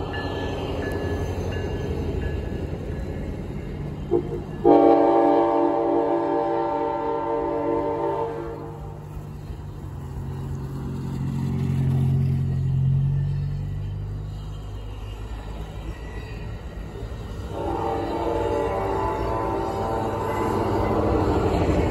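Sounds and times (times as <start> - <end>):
locomotive engine rumble: 0.0 - 21.9
locomotive horn: 4.1 - 9.0, 17.4 - 21.8.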